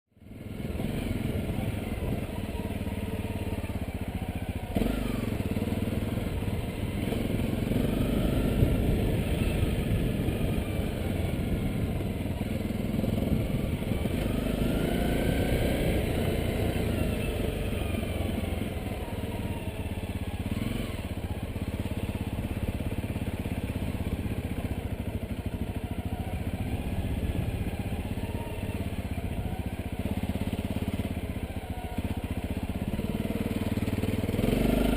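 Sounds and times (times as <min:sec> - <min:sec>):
motorcycle engine revving: 0:00.2 - 0:34.9.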